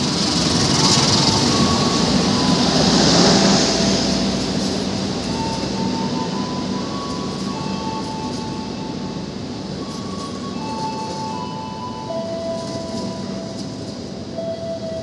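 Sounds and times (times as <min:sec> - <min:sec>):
locomotive engine hum: 0:00.0 - 0:15.0
train wheels on rail: 0:00.0 - 0:15.0.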